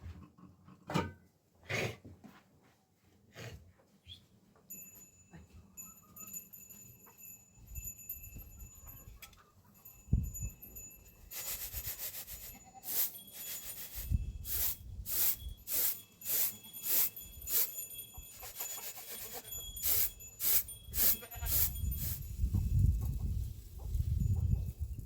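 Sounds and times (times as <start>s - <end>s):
goat bells clinking: 4.6s - 23.1s.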